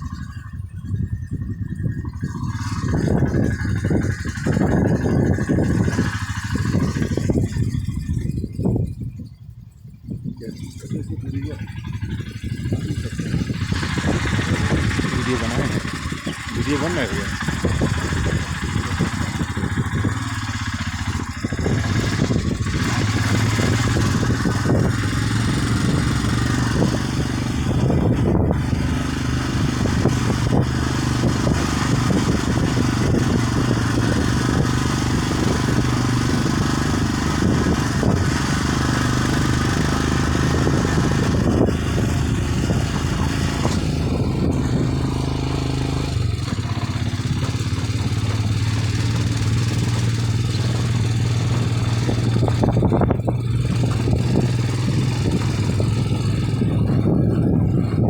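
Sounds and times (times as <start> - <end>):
vehicle engine running: 0.0 - 58.0
knocks and rattles from bumps: 42.0 - 57.6.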